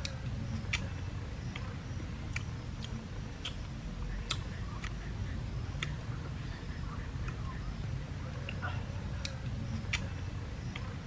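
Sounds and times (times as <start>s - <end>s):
person chewing and lip-smacking: 0.0s - 6.2s.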